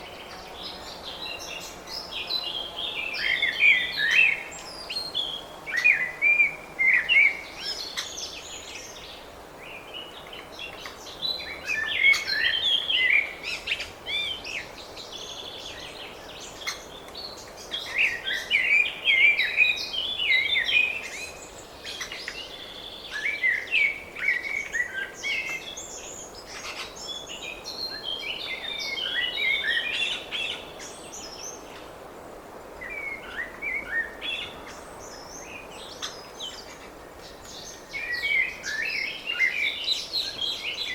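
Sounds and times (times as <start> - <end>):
faint outdoor hiss: 0.0 - 40.9
songbirds chirping: 0.0 - 40.9.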